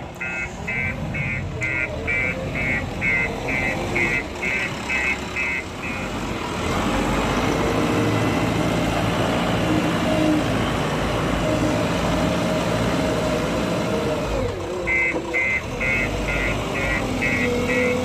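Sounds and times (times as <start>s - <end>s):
diesel engine running: 0.0s - 18.0s
reversing alarm beeping: 0.2s - 6.2s, 14.9s - 18.0s.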